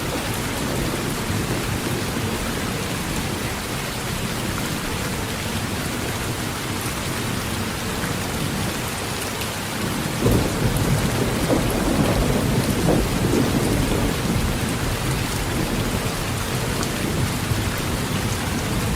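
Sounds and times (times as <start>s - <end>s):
thunder rumbling: 0.0s - 3.3s, 9.8s - 18.9s
heavy rain on a tin roof: 0.0s - 18.9s.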